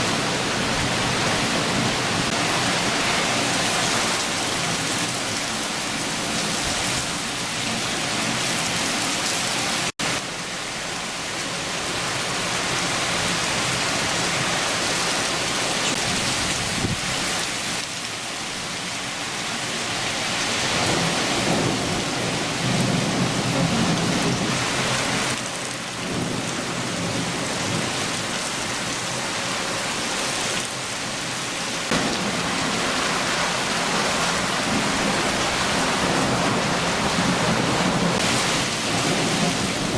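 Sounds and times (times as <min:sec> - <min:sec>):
steady rain downpour: 0:00.0 - 0:39.9
low rumble of thunder: 0:20.8 - 0:25.3, 0:34.1 - 0:39.9.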